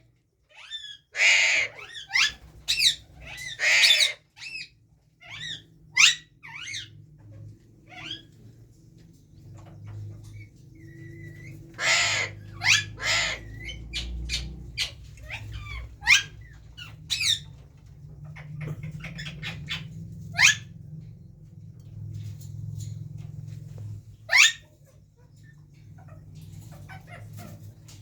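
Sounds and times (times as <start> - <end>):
harsh parakeet screeches: 0.5 - 6.9, 11.3 - 17.5, 24.3 - 24.7
parakeets squawking: 0.5 - 7.0, 7.8 - 8.4, 9.5 - 20.9, 24.2 - 28.0.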